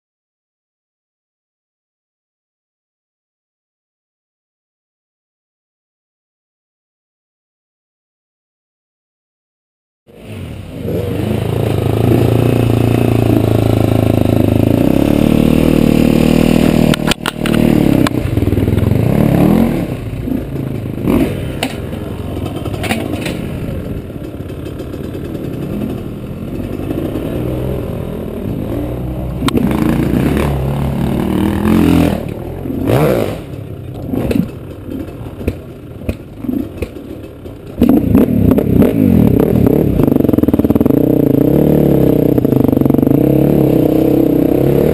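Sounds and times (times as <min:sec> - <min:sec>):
motocross engine revving: 0:10.1 - 0:44.9
bike knocks and clatter: 0:20.4 - 0:27.1, 0:32.2 - 0:38.7.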